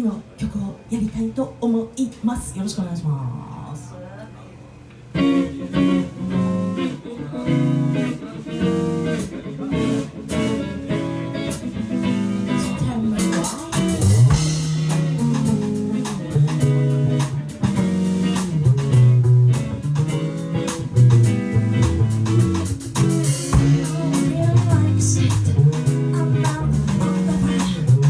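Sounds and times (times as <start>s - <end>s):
live band playing: 5.2s - 28.0s.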